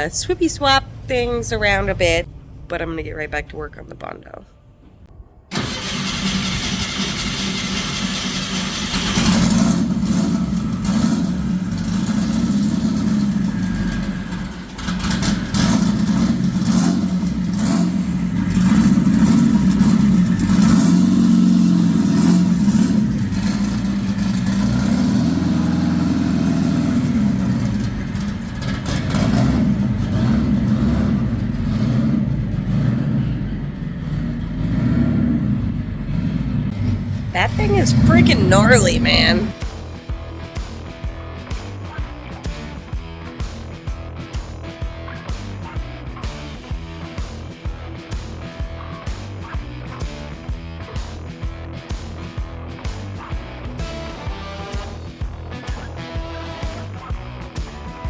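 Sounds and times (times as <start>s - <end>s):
car engine revving: 5.5s - 39.7s.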